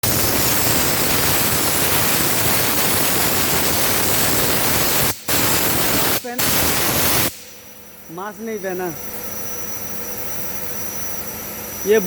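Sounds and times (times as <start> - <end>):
spray gun hissing: 0.0 - 7.6.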